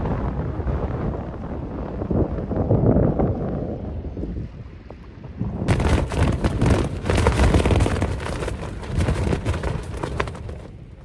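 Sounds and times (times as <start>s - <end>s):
wind noise on microphone: 0.0s - 11.0s
tent fabric flapping: 5.7s - 11.0s.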